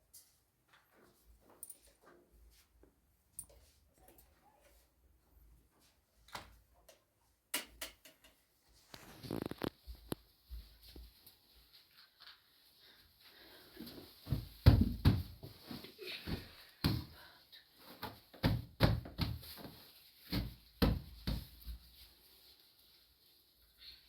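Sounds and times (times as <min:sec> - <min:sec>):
irregular knocks and thuds: 0:14.2 - 0:15.6, 0:18.0 - 0:19.6.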